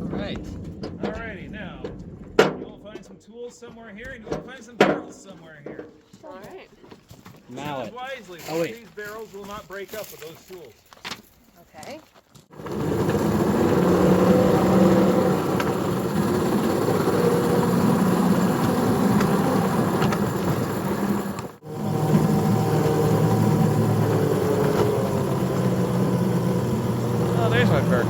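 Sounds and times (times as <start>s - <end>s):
small engine running: 12.5s - 28.0s.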